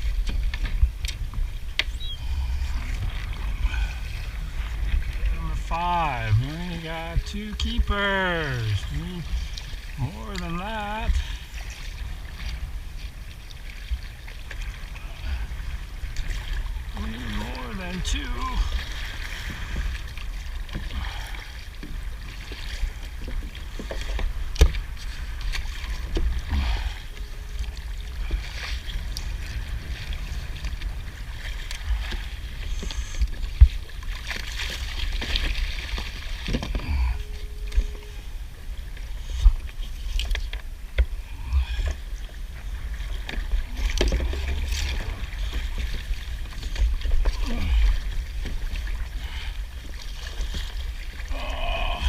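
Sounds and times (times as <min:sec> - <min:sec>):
low rumble: 0:00.0 - 0:21.6
paddle splashing water: 0:00.0 - 0:52.0.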